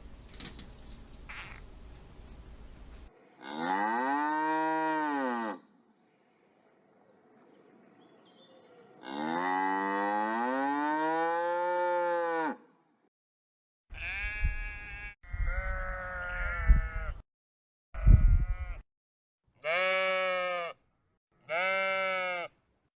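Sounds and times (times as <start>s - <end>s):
wavering bleating calls: 1.3s - 1.6s, 3.3s - 5.7s, 13.9s - 17.2s, 18.0s - 18.8s, 19.6s - 20.8s, 21.4s - 22.6s
cow mooing: 3.4s - 5.7s, 9.0s - 12.7s, 19.6s - 20.8s, 21.5s - 22.5s.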